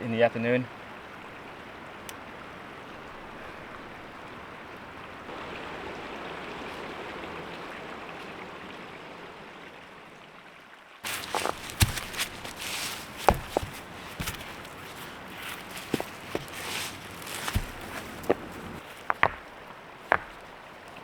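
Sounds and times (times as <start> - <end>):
creek water rushing: 0.0 - 21.0
rustling: 11.0 - 21.0
sharp knocks: 11.2 - 20.4.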